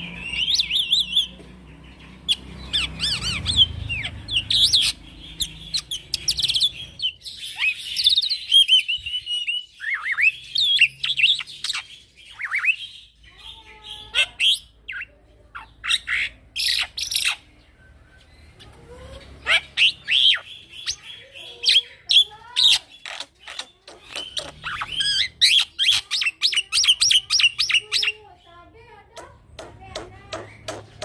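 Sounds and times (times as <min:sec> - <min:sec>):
bird singing chirps and whistles: 0:02.7 - 0:12.9.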